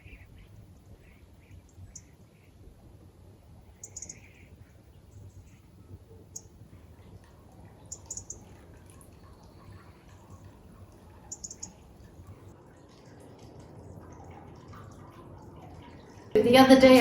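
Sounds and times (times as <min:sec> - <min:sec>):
small bird chirping: 0:00.0 - 0:02.5, 0:03.7 - 0:06.6, 0:07.9 - 0:08.5, 0:11.2 - 0:11.8.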